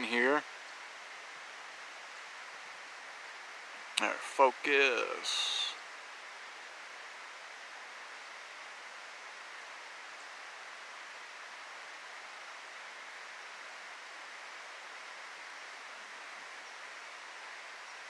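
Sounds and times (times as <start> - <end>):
outdoor rushing hiss: 0.0 - 18.0.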